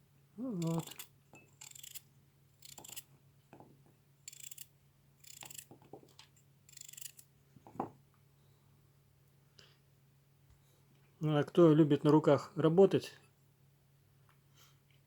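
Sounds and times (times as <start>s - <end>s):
knife slicing carrot: 0.5s - 1.1s.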